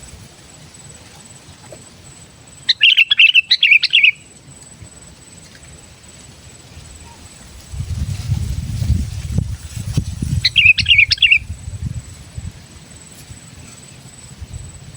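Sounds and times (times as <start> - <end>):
bulbul singing quick chirps: 2.6 - 4.3, 10.2 - 11.6.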